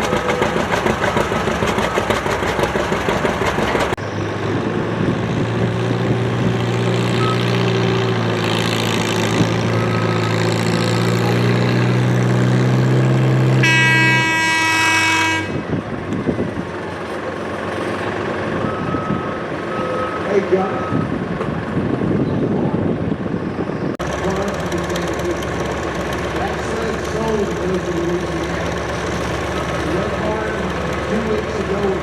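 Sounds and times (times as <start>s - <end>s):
engine running roughly: 0.0s - 19.8s, 24.0s - 32.0s
steady engine drone: 0.0s - 32.0s
high horn blast: 13.5s - 15.7s.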